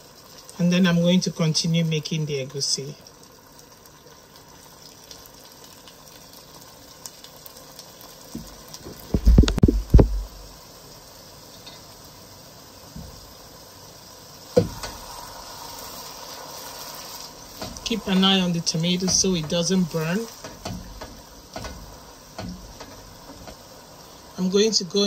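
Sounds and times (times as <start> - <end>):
sauce sizzling in oil: 0.0 - 25.0
loud knocks and thumps: 8.4 - 10.4.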